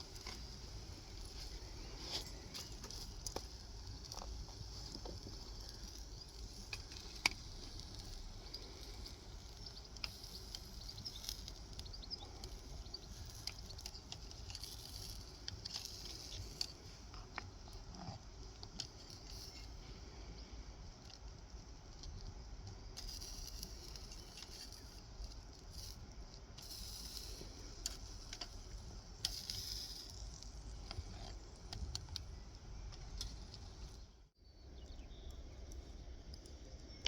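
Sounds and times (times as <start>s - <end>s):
steaks sizzling on a grill: 0.0s - 17.0s, 23.0s - 25.0s, 26.6s - 30.9s
wood fire crackling and popping: 0.0s - 34.2s.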